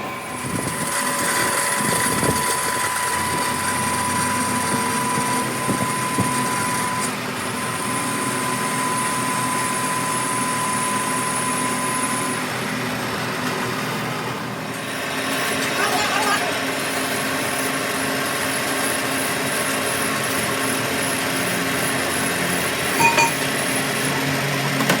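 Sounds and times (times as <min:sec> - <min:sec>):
high even whine: 0:22.9 - 0:23.6.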